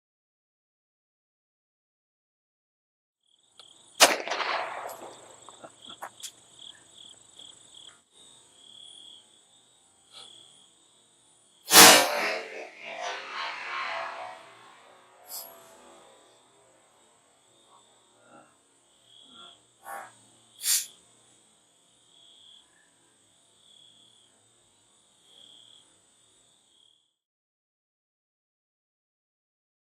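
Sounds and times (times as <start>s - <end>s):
crickets chirping: 3.2s - 11.8s, 13.8s - 27.2s
pistol shot: 4.0s - 5.8s, 11.7s - 13.2s.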